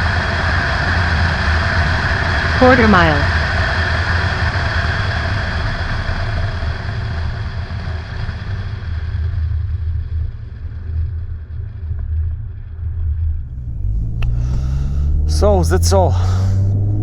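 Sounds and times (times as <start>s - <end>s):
car engine and road rumble: 13.2s - 17.0s
wind and tyre hiss: 13.4s - 17.0s.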